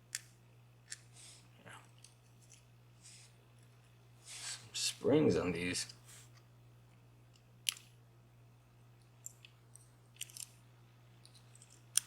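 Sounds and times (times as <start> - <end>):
steady low hum: 0.0 - 12.0
small metal clicks: 9.2 - 10.6, 11.2 - 12.0.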